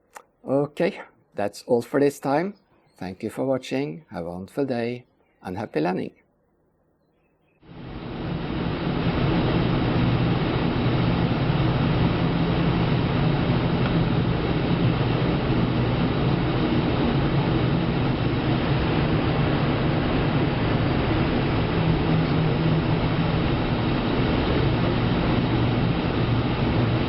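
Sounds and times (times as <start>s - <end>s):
low mechanical hum: 0.0s - 27.0s
even rushing noise: 7.6s - 27.0s.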